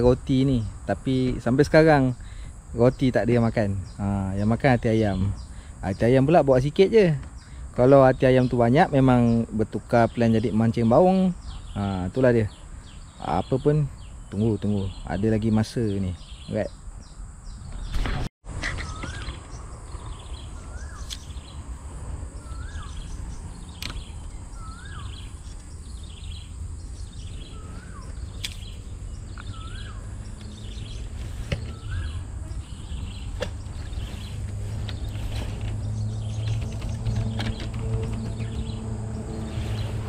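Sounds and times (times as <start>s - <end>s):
bird whistling: 18.6s - 19.4s, 22.4s - 23.2s, 23.8s - 25.3s, 27.3s - 28.3s, 29.3s - 30.1s, 31.6s - 32.2s
sharp clicks: 23.8s - 24.2s.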